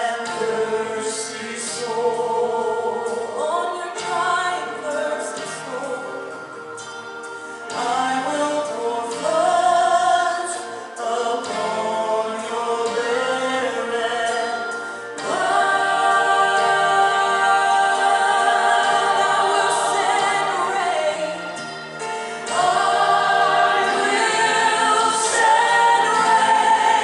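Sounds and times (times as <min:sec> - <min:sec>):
group singing a worship song: 0:00.0 - 0:06.6, 0:07.7 - 0:27.0.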